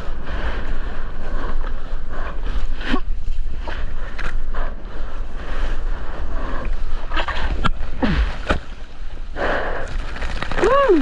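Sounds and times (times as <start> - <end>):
wind rumbling on microphone: 0.0 - 11.0
water sloshing and splashing: 9.8 - 11.0.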